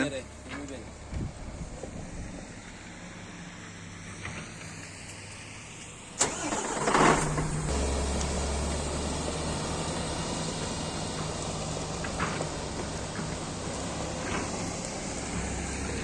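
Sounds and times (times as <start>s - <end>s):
engine cranking and idling: 6.1s - 16.0s.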